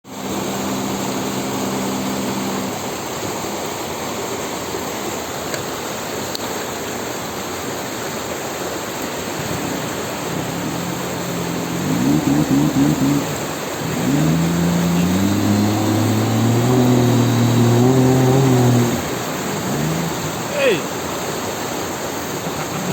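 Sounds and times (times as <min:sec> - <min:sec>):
outboard motor running: 0:00.0 - 0:03.4, 0:09.0 - 0:22.9
rushing water: 0:00.0 - 0:22.9
wind: 0:00.0 - 0:22.9.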